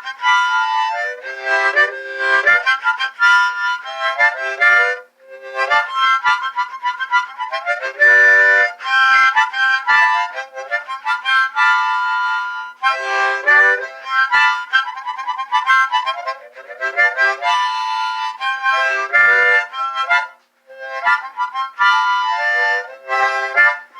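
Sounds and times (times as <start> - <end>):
solo harmonica: 0.0 - 23.9.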